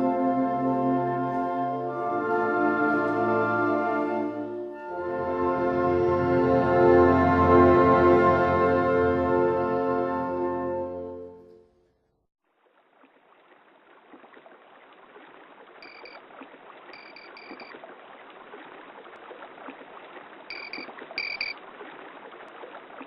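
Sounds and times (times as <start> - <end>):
water rushing: 12.5 - 23.0
short high chirps: 15.8 - 16.2, 17.0 - 17.7, 20.5 - 21.6.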